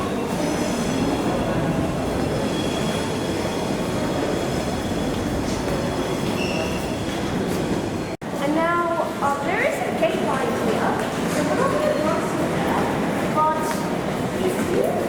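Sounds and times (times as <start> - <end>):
high-pitched wheel squeal: 6.0 - 7.2.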